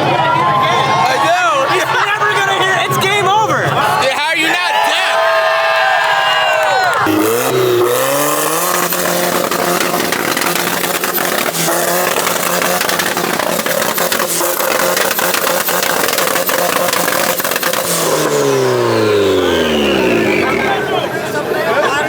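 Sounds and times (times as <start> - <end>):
engine popping and crackling: 6.8 - 22.0
car engine revving on limiter: 6.9 - 22.0.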